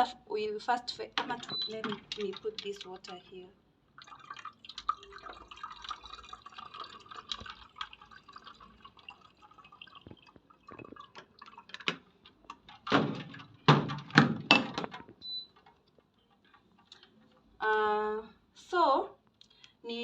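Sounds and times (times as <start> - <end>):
water pouring into dispenser: 1.1 - 17.4
water splashes: 3.9 - 13.4.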